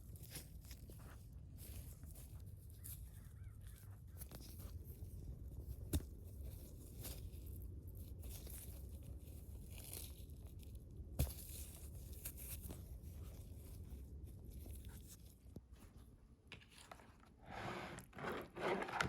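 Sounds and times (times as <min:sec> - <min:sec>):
hands crunching clay and sand: 0:05.6 - 0:15.3.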